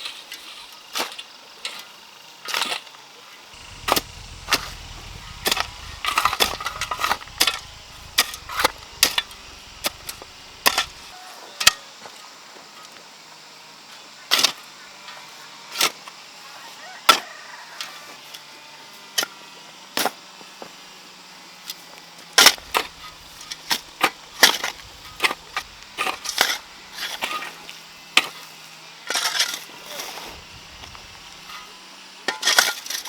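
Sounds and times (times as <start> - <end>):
faint low hum: 3.6 - 11.1, 22.4 - 27.6, 30.2 - 31.6.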